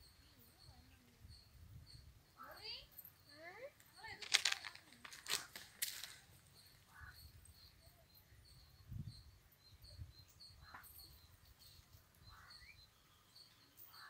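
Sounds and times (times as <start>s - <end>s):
high bird chirp: 6.5s - 14.0s.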